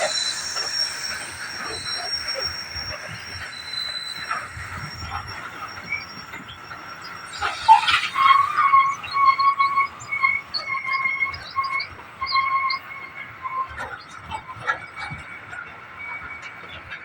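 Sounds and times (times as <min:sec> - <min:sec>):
train wheels squealing on rails: 0:00.0 - 0:17.0.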